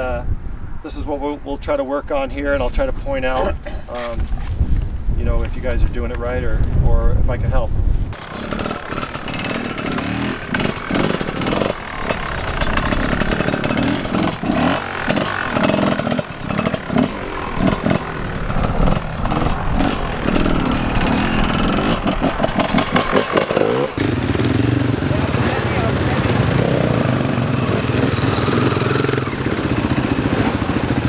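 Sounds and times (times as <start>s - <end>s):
dirt bike engines revving: 8.1s - 31.0s.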